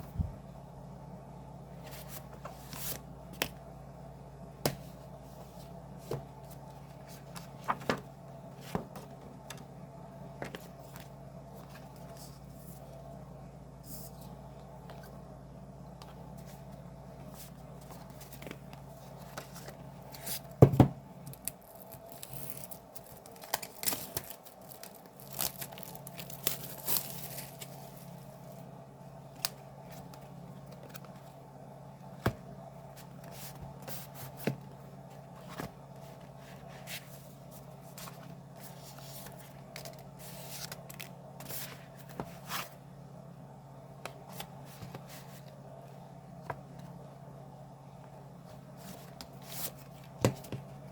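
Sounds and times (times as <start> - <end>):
steady low hum: 0.0 - 50.9
packaging tearing and crinkling: 21.3 - 27.7.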